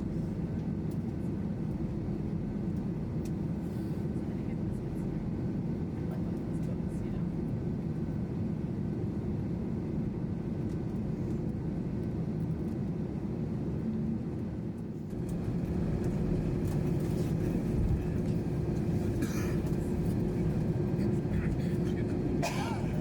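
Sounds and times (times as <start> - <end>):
airplane cabin rumble: 14.4 - 23.0.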